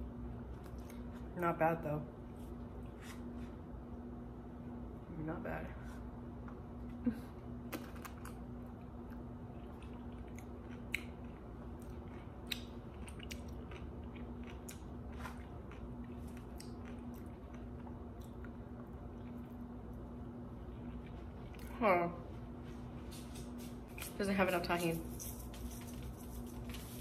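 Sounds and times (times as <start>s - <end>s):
faint low hum: 0.0s - 27.0s
chewing and crunching pickle: 7.6s - 21.8s.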